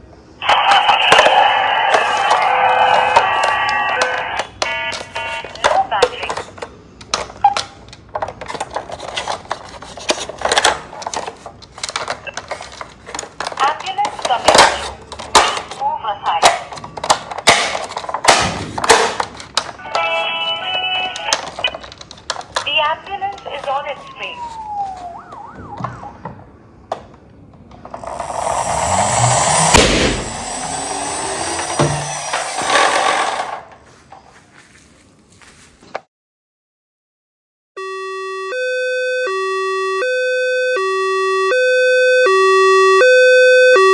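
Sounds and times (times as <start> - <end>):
toy siren wailing: 0.4 - 6.4, 19.8 - 21.5, 22.8 - 26.4, 37.8 - 43.9
plastic toys clattering: 0.7 - 25.1
hissing noise: 27.9 - 33.4
loud pop: 28.1 - 32.1.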